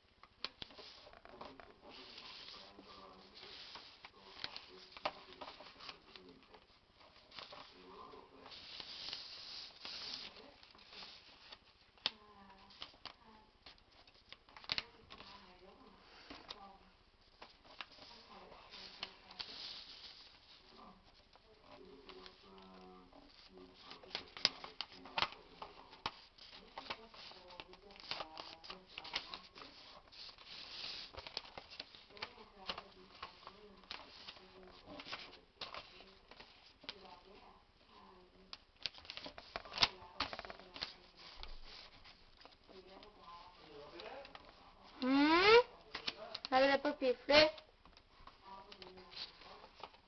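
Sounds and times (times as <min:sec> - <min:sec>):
paper rustling and sliding: 0:00.4 - 0:13.2, 0:17.4 - 0:37.4
paper creasing clicks: 0:21.1 - 0:37.1, 0:38.4 - 0:43.2.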